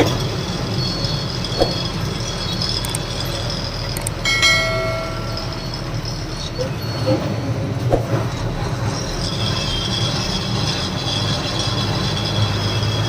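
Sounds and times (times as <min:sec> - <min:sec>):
truck diesel engine rumble: 0:00.0 - 0:13.0
brief higher tone: 0:04.2 - 0:06.1.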